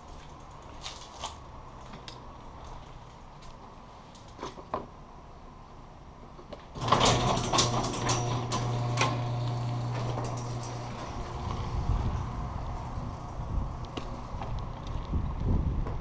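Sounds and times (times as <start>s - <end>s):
steady low hum: 7.3s - 15.4s.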